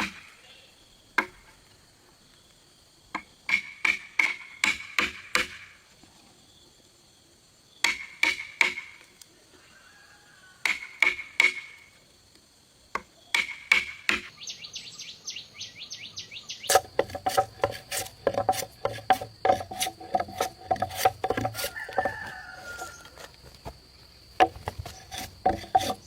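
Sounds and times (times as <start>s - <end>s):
hammer striking wood: 3.5s - 5.6s, 7.8s - 8.9s, 13.4s - 14.3s, 16.7s - 22.3s, 24.4s - 26.0s
scraping on timber: 16.7s - 26.0s.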